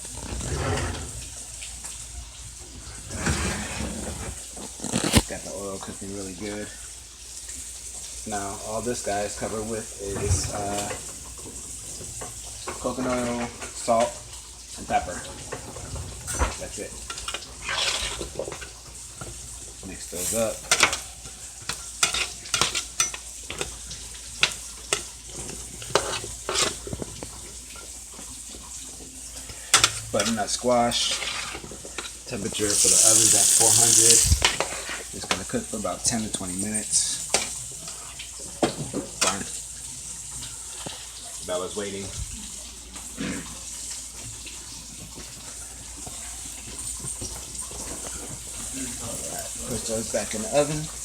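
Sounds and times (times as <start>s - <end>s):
frying sizzle: 0.0s - 51.0s
utensil scraping and clacking on dish: 14.9s - 19.4s, 20.1s - 27.9s, 29.6s - 35.5s.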